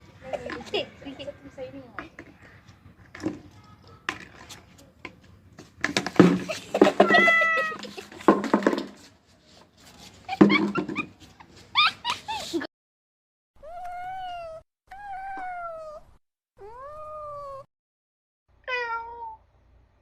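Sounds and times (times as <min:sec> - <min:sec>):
cat meowing: 0:07.0 - 0:07.9, 0:13.6 - 0:17.7, 0:18.7 - 0:19.4.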